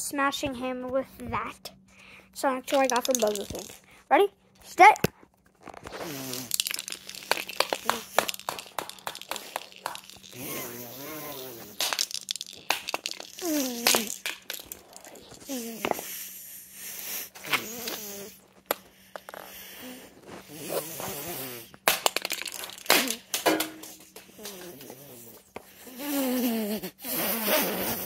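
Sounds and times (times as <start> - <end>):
wordless vocal noises: 9.6 - 11.8.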